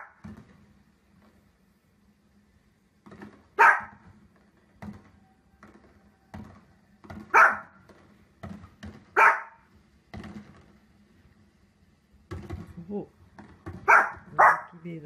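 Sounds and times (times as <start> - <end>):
small dog barking: 3.6 - 4.0, 7.3 - 7.7, 9.1 - 9.6, 13.8 - 14.8.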